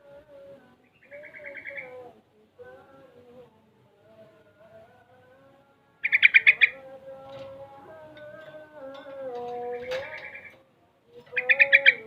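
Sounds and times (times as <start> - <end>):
bird chattering notes: 6.0 - 6.8, 11.3 - 12.0.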